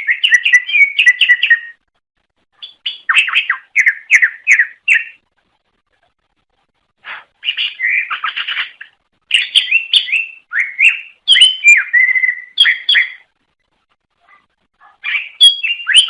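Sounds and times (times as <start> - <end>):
bird singing chirps and whistles: 0.0 - 1.8, 2.6 - 5.2, 7.4 - 13.3, 15.0 - 16.0.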